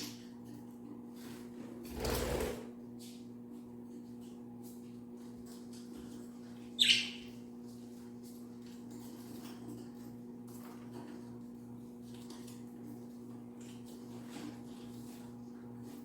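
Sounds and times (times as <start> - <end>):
low electrical hum: 0.0 - 16.0
budgie chirp: 6.8 - 7.2.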